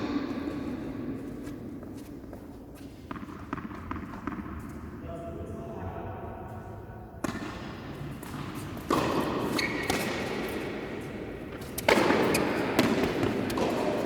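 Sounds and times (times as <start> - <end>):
tennis ball bouncing on court: 0.1 - 4.8, 7.2 - 14.0
tennis ball struck by rackets: 7.2 - 10.8, 11.5 - 14.0.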